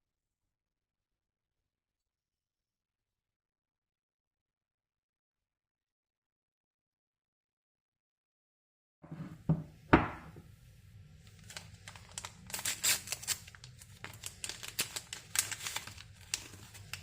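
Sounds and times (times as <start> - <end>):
crinkling and rustling: 11.2 - 17.0.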